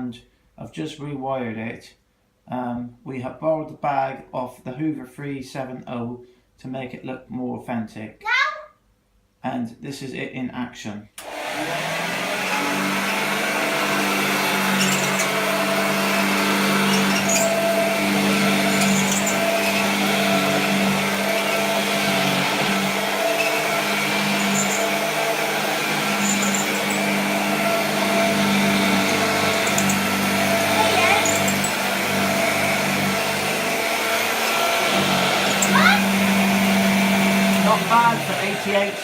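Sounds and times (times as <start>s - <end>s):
upright vacuum cleaner motor: 11.2s - 39.0s.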